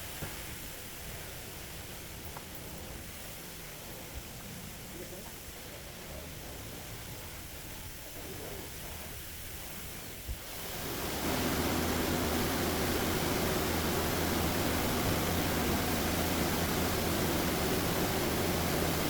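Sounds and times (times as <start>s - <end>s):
car wash spray hissing: 9.5s - 19.0s
low hum: 10.6s - 19.0s.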